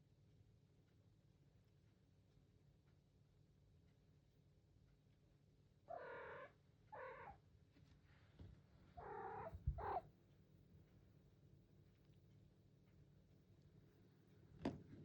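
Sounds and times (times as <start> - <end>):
cat meowing: 9.0 - 10.0.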